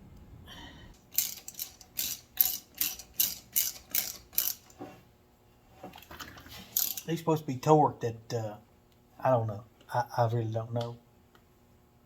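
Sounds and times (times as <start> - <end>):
ratchet wrench clicking: 1.1 - 4.8, 6.8 - 7.1.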